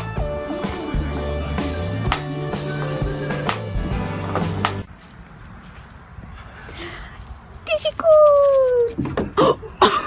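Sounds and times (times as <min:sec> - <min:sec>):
music with bass and drums: 0:00.0 - 0:04.9.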